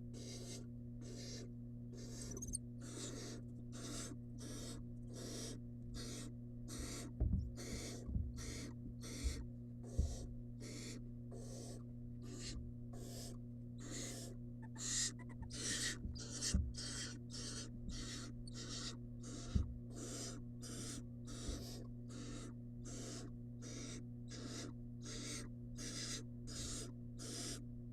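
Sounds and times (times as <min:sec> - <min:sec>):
steady low hum: 0:00.0 - 0:27.9
owl nestling rasping hisses: 0:00.2 - 0:27.6.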